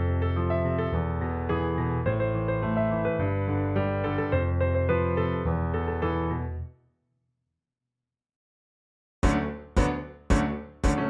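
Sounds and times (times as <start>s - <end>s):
solo piano chords: 0.0s - 6.8s.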